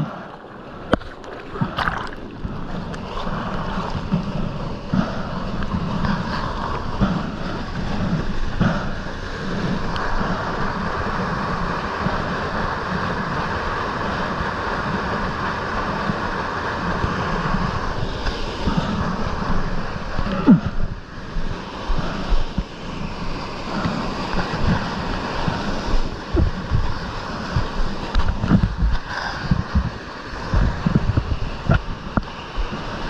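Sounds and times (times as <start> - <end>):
stream water rushing: 0.0 - 33.0.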